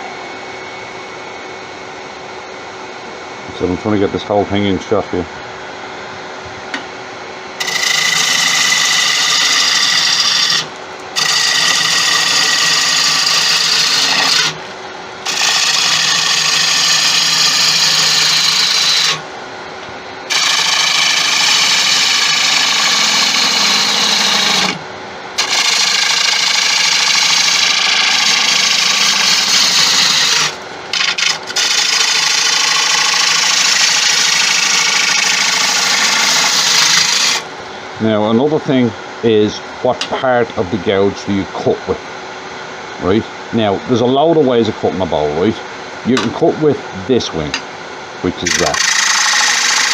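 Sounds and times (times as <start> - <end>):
lathe motor humming: 7.5 - 19.6, 20.2 - 24.8, 25.4 - 38.7, 48.2 - 49.9
gouge scraping spinning wood: 7.6 - 19.2, 20.3 - 24.8, 25.4 - 37.5, 48.3 - 49.9.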